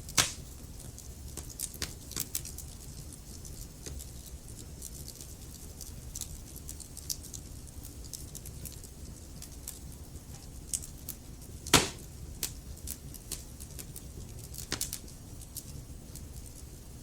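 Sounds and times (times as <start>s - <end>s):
log fire crackling: 0.0s - 17.0s
loud pop of fire: 0.1s - 0.4s, 11.7s - 12.1s.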